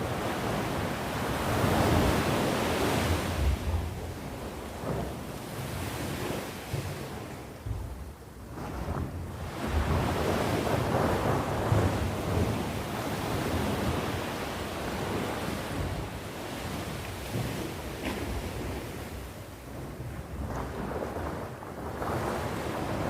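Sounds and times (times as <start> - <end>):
sea waves washing ashore: 0.0 - 23.0
wind buffeting microphone: 0.0 - 23.0.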